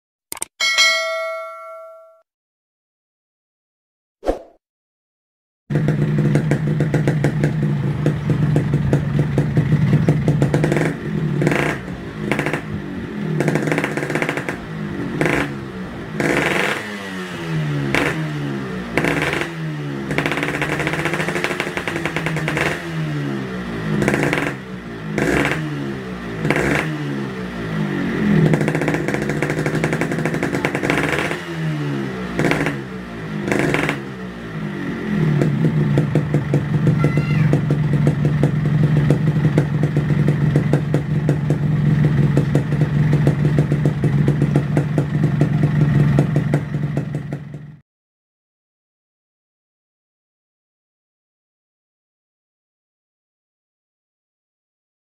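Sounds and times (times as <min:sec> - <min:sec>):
motorcycle engine revving: 0:05.7 - 0:47.8.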